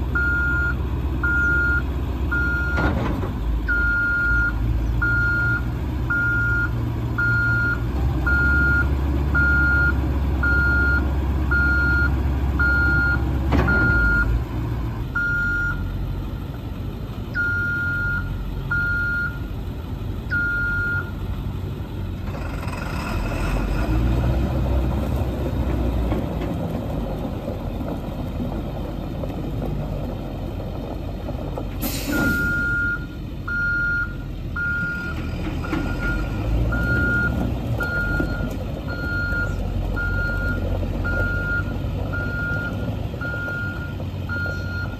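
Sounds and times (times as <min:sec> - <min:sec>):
diesel truck engine running: 0:00.0 - 0:44.9
brief air hiss: 0:31.8 - 0:32.6.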